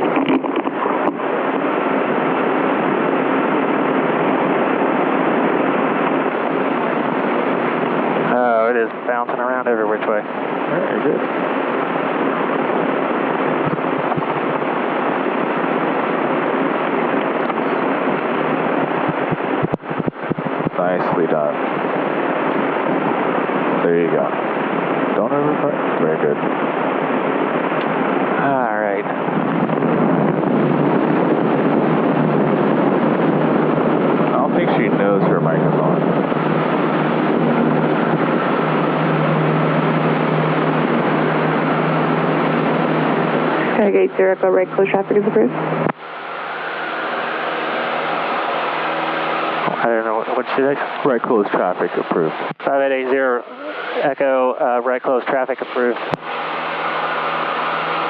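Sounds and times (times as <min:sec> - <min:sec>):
airplane engine and propeller drone: 0:00.0 - 0:58.0
low hum: 0:00.0 - 0:58.0
low thumps: 0:13.4 - 0:14.8, 0:18.4 - 0:22.0.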